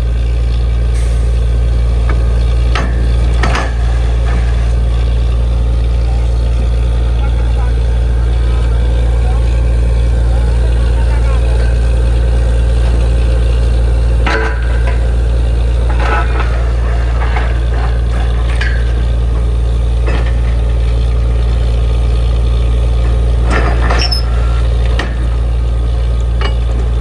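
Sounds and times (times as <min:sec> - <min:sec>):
drilling rig droning: 0:00.0 - 0:27.0
metallic clanks and squeaks: 0:14.2 - 0:21.0, 0:23.0 - 0:25.4, 0:26.3 - 0:27.0.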